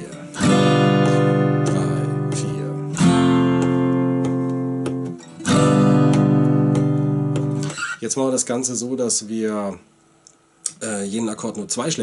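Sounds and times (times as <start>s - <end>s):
acoustic guitar chords strummed: 0.0s - 8.0s.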